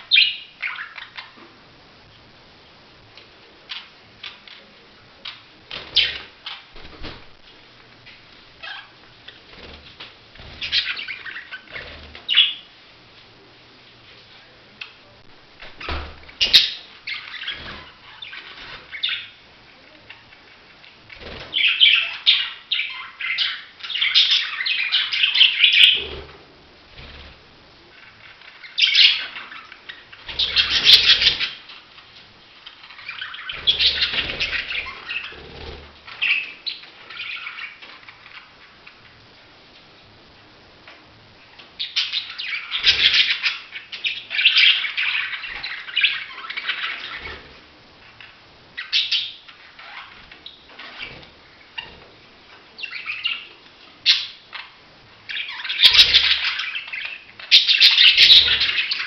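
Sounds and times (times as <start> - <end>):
budgerigars chirping and warbling: 0.0 - 1.4, 5.2 - 6.8, 10.4 - 12.7, 15.6 - 19.4, 21.1 - 27.3, 28.0 - 31.9, 32.6 - 38.8, 41.5 - 47.6, 48.2 - 52.1, 52.8 - 59.0.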